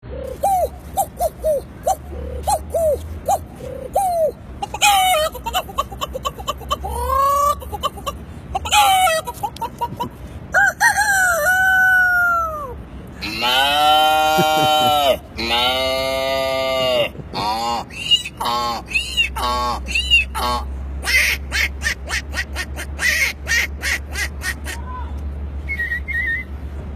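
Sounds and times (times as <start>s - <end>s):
rooster-like crow: 10.5s - 15.1s.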